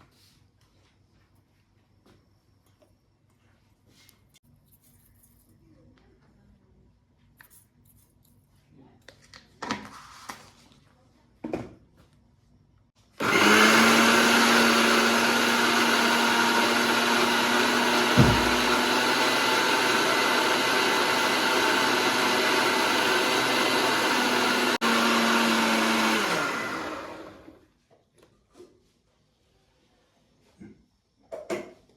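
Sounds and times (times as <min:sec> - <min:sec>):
blender motor whine: 0:13.2 - 0:27.6.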